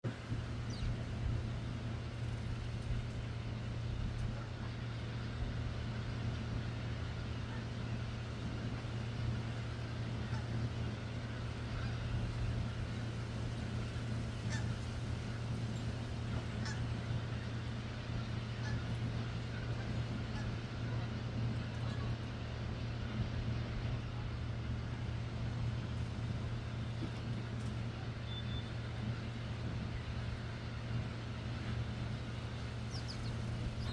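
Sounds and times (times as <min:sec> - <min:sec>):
steady low hum: 0:00.0 - 0:33.9
faint sparrow chirps: 0:32.9 - 0:33.9.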